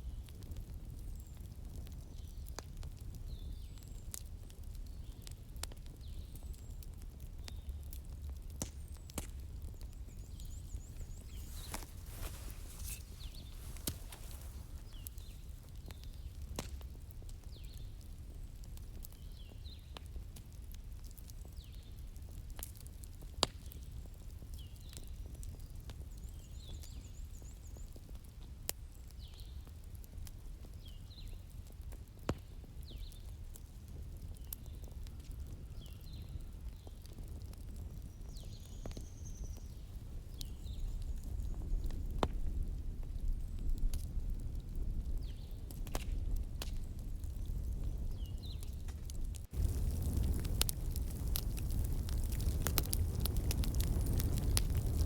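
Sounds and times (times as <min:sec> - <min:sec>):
wood fire crackling: 0:00.1 - 0:55.0
sharp snaps of fire: 0:00.2 - 0:55.0
birds chirping faintly: 0:08.8 - 0:16.4.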